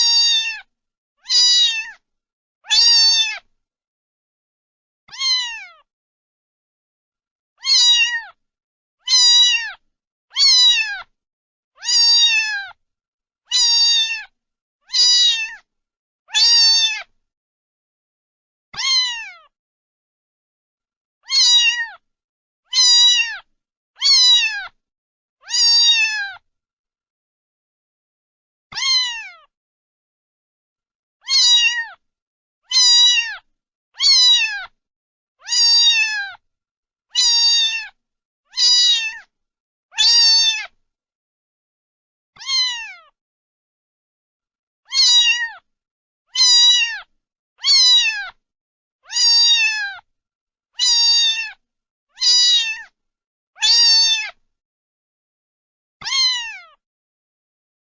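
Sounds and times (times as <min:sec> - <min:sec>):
cat meowing: 0:00.0 - 0:02.0, 0:02.6 - 0:03.5, 0:05.1 - 0:05.9, 0:07.6 - 0:08.4, 0:09.0 - 0:11.1, 0:11.8 - 0:12.8, 0:13.5 - 0:14.3, 0:14.9 - 0:15.7, 0:16.3 - 0:17.1, 0:18.8 - 0:19.5, 0:21.2 - 0:22.0, 0:22.7 - 0:24.8, 0:25.4 - 0:26.4, 0:28.7 - 0:29.5, 0:31.2 - 0:32.0, 0:32.7 - 0:34.8, 0:35.4 - 0:36.4, 0:37.2 - 0:39.3, 0:39.9 - 0:40.8, 0:42.4 - 0:43.2, 0:44.9 - 0:45.7, 0:46.3 - 0:48.4, 0:49.0 - 0:50.1, 0:50.8 - 0:51.6, 0:52.2 - 0:53.0, 0:53.6 - 0:54.4, 0:56.0 - 0:56.8.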